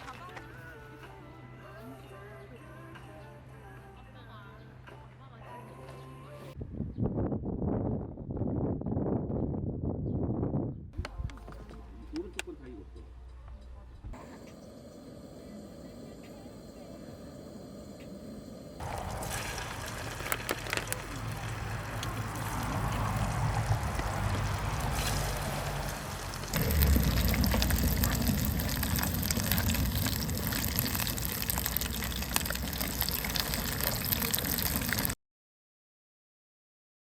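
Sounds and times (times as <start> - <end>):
water rushing: 18.8 - 35.2.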